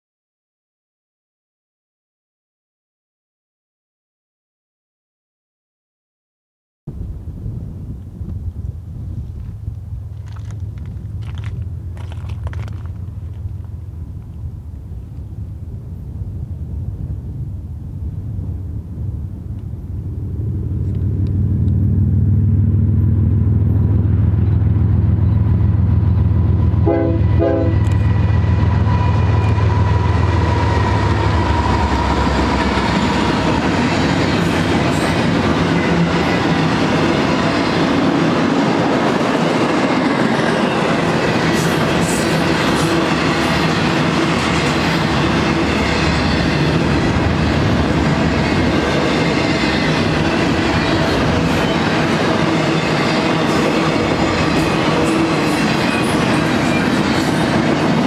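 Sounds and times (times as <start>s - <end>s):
diesel locomotive engine drone: 6.9s - 58.0s
wheels on rails: 7.9s - 15.5s, 27.8s - 58.0s
clickety-clack over rail joints: 9.3s - 15.3s, 24.1s - 58.0s
train horn toots: 26.5s - 33.5s.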